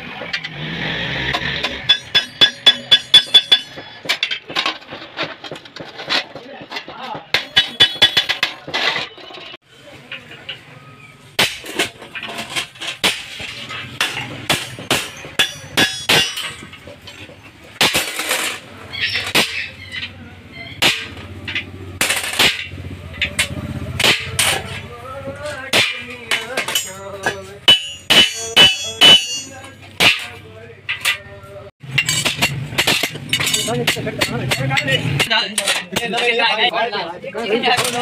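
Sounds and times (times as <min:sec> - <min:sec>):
background voices: 0:22.8 - 0:31.7.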